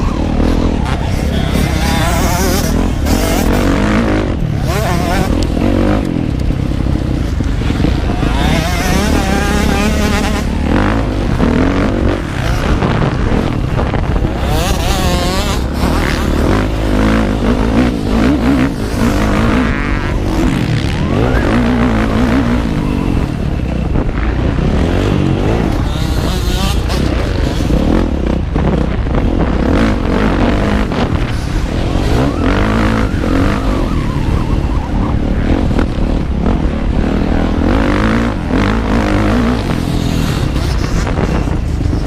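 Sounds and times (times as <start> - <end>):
motocross bike engine revving: 0.0 - 42.0
wind noise: 0.0 - 42.0.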